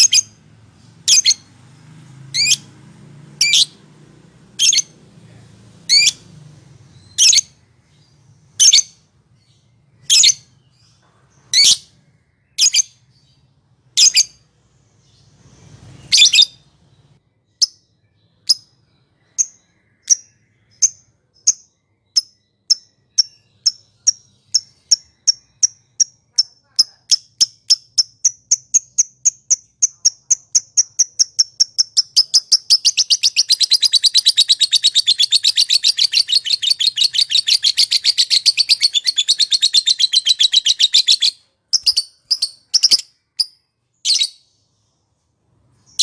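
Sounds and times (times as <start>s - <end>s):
lovebird shrill calls: 30.9s - 43.5s.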